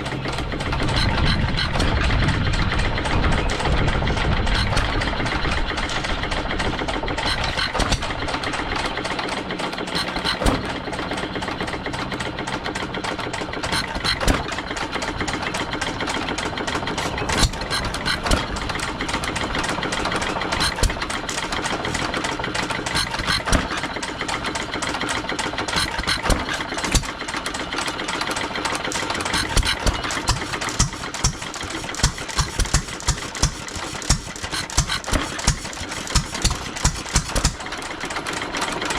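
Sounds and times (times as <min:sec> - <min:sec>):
stationary engines clattering: 0:00.0 - 0:38.9.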